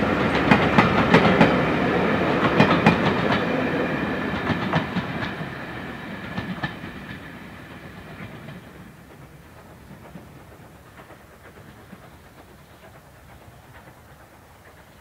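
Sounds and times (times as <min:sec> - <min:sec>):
train wheels clicking over joints: 0:00.0 - 0:15.0.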